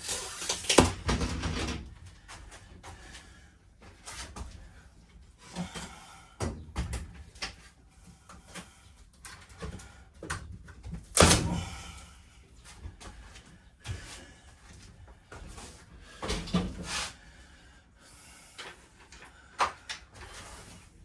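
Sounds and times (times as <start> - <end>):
wooden boards knocking and clattering: 0.8 - 1.9.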